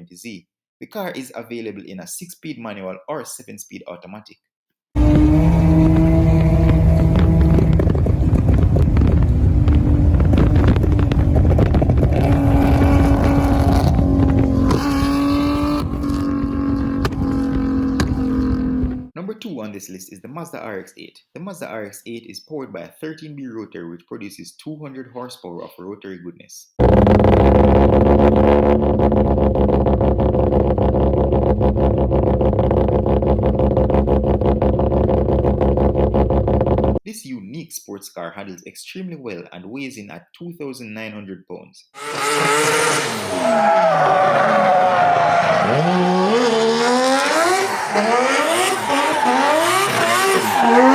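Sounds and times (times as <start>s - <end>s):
car engine running: 5.0s - 19.1s, 26.8s - 37.0s
rotary engine running: 26.8s - 37.0s.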